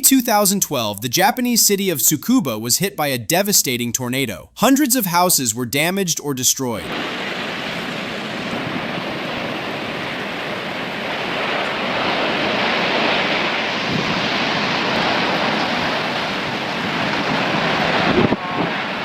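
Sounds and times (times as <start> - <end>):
tornado winds roaring: 6.8 - 19.0.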